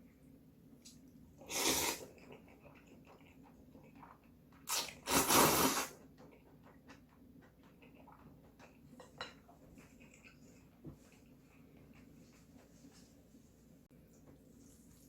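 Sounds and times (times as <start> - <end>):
person slurping noodles: 1.4 - 2.1, 4.7 - 6.0.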